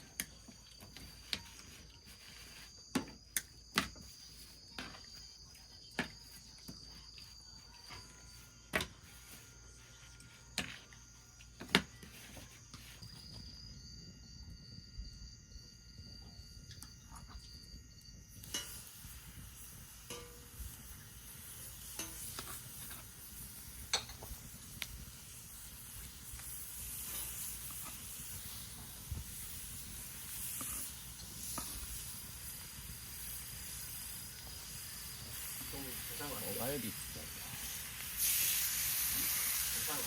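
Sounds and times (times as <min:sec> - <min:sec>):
meat sizzling on a grill: 0:18.4 - 0:40.0.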